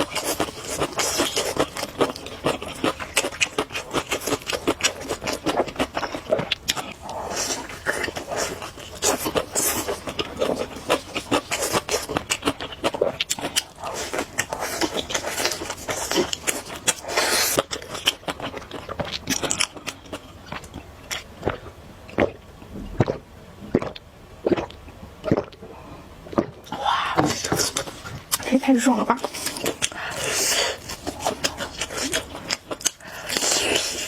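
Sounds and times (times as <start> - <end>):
chewing crunchy fried food: 0.0 - 34.0.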